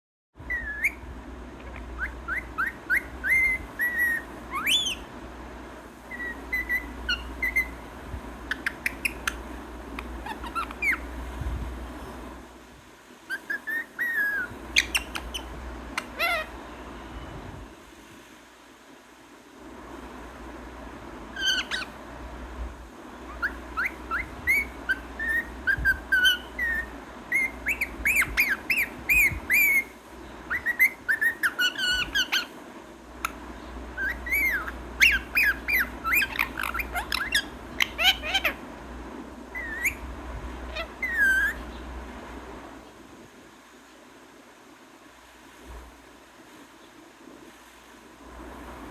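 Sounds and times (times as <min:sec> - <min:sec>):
low background hum: 0:00.4 - 0:48.9
parrot squawks and whistles: 0:00.5 - 0:01.0, 0:01.6 - 0:05.1, 0:06.1 - 0:07.8, 0:10.2 - 0:11.2, 0:13.3 - 0:17.3, 0:21.3 - 0:21.9, 0:23.3 - 0:32.6, 0:34.0 - 0:38.6, 0:39.5 - 0:40.1, 0:40.7 - 0:41.7.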